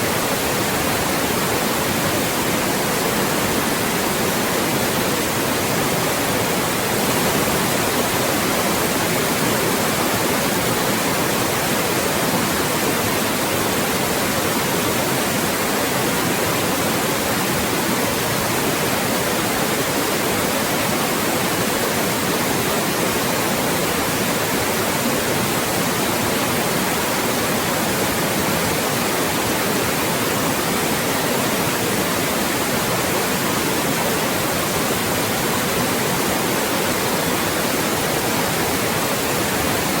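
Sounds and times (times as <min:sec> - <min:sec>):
white noise hiss: 0:00.0 - 0:40.0.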